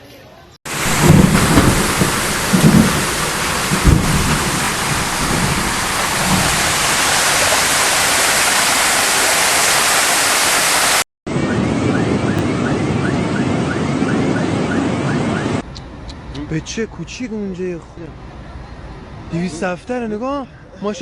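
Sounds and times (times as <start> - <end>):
low rumbles: 0.7 - 9.4
heavy rain pouring: 0.7 - 11.1
sharp low thud: 0.8 - 7.0.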